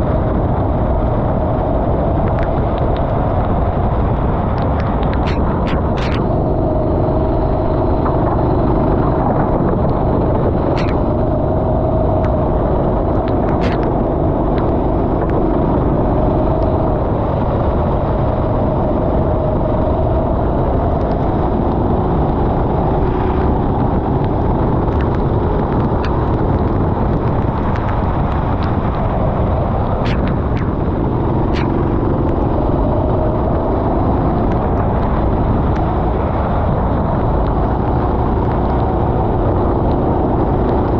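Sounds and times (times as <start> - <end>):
loud steady rushing noise: 0.0 - 40.9
go-kart engine running: 2.9 - 40.9
sharp clicks: 4.6 - 6.4, 10.7 - 11.4, 13.2 - 15.4, 29.9 - 35.9.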